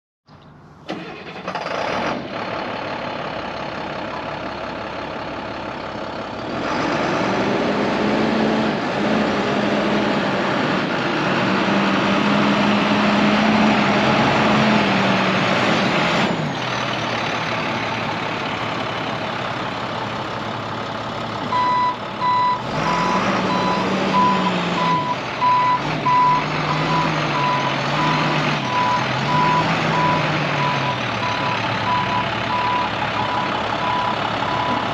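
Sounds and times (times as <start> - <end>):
truck diesel engine running: 0.8 - 34.9
reversing alarm beeps: 21.5 - 34.8.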